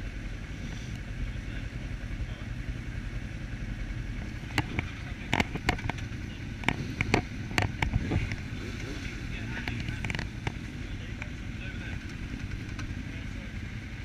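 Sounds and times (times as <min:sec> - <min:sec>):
motorcycle engine rumble: 0:00.0 - 0:14.0
sharp clicks and knocks: 0:04.2 - 0:08.5, 0:09.5 - 0:13.0.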